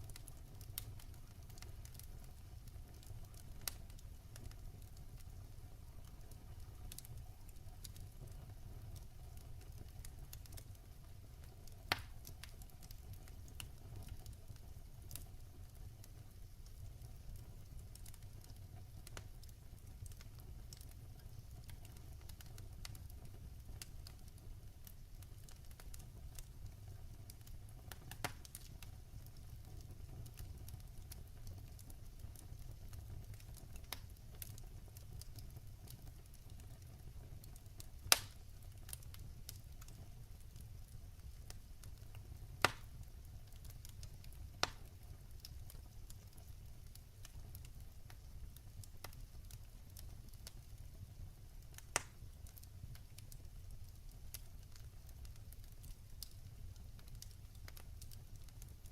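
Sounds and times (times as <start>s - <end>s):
log fire crackling: 0.0s - 58.9s
sharp fire pops: 11.9s - 12.5s, 38.0s - 38.4s, 42.6s - 42.9s, 44.6s - 44.9s, 51.7s - 52.2s.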